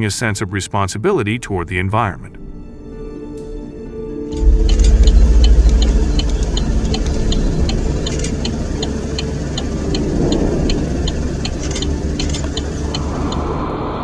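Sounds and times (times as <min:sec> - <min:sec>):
regular ticking: 0:04.3 - 0:13.6
engine deep rumble: 0:04.3 - 0:14.0.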